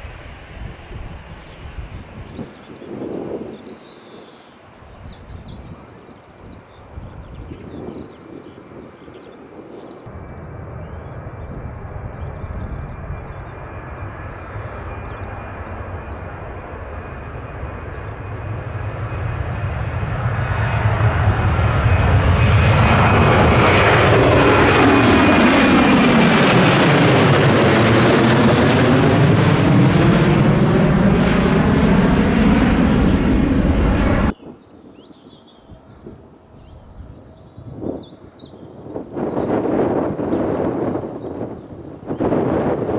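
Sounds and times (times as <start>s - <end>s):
jet airliner roaring past: 0.0s - 34.4s, 35.6s - 42.9s.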